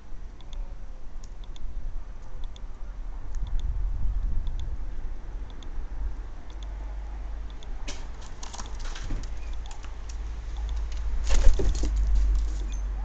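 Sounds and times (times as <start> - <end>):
low rumble: 0.0 - 7.9
birds tapping and rustling: 7.8 - 12.8.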